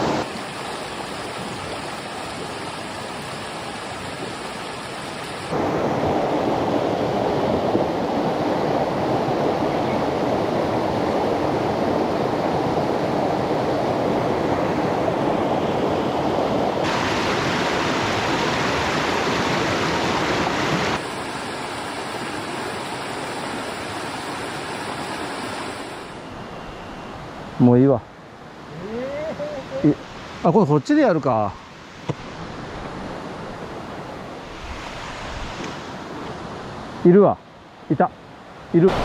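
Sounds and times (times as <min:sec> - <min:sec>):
mountain stream rushing: 0:00.0 - 0:39.0.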